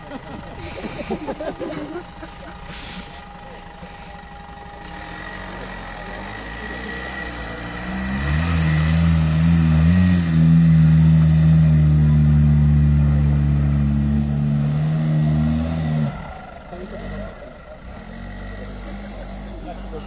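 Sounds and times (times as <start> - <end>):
buggy engine revving hard: 4.7 - 20.0.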